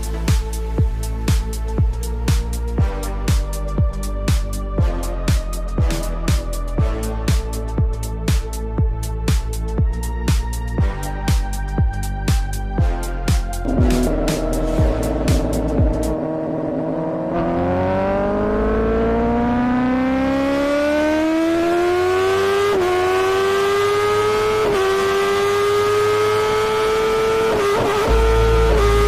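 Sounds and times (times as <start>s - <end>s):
motorcycle engine accelerating: 13.6s - 29.0s.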